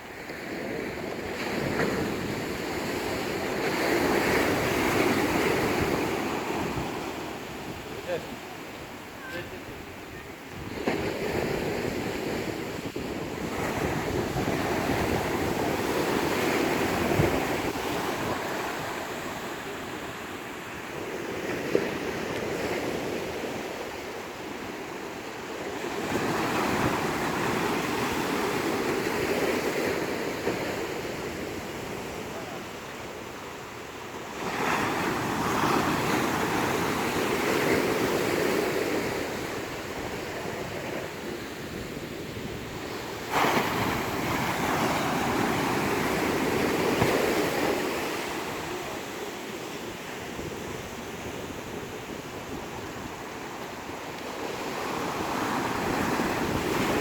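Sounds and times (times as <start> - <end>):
waves breaking: 0.0 - 57.0
wind buffeting microphone: 0.7 - 24.8.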